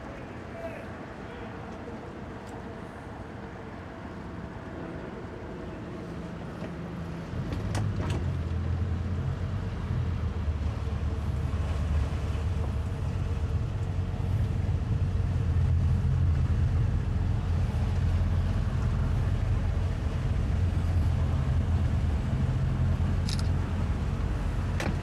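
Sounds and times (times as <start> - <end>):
outboard motors running: 6.6 - 25.0.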